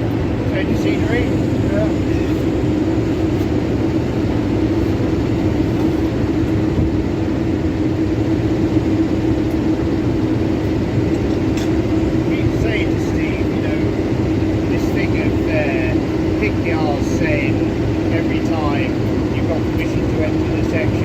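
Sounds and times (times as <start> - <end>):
diesel locomotive engine droning: 0.0 - 21.0.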